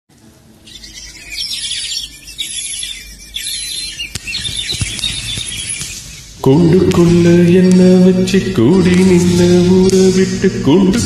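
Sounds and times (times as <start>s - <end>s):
birds chirping: 0.4s - 7.7s.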